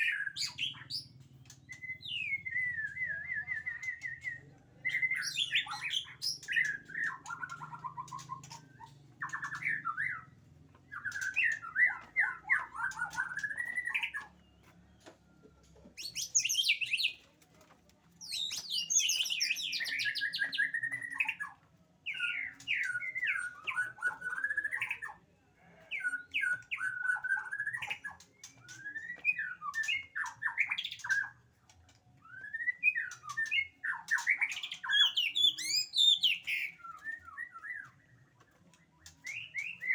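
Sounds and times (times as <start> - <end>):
bird singing whistled phrases: 1.7 - 8.6, 26.0 - 31.4, 32.2 - 38.1, 39.2 - 39.9.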